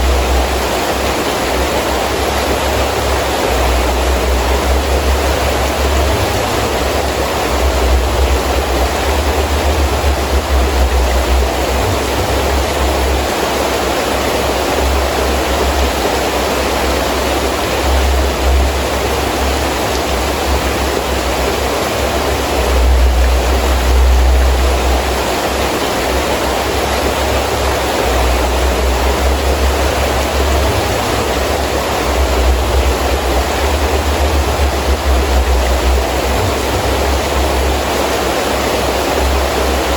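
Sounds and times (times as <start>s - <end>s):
heavy rain falling: 0.0s - 39.9s
strong wind gusts: 0.0s - 39.9s.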